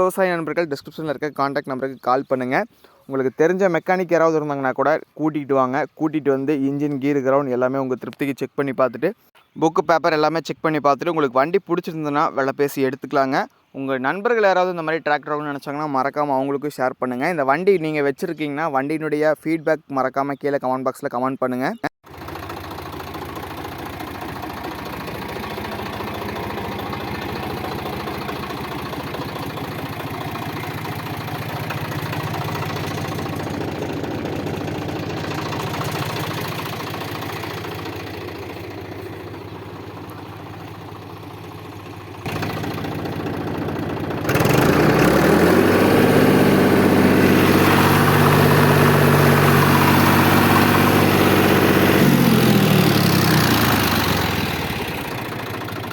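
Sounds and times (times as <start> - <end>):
tractor diesel engine idling: 22.0 - 55.9.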